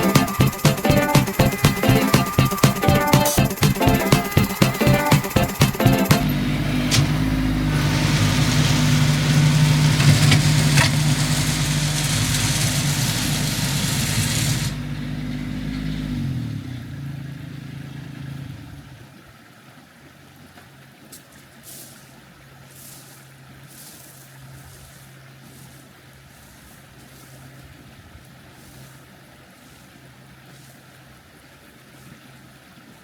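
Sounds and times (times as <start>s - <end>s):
rushing noise: 0.0s - 14.9s
tractor diesel engine running: 0.0s - 18.9s.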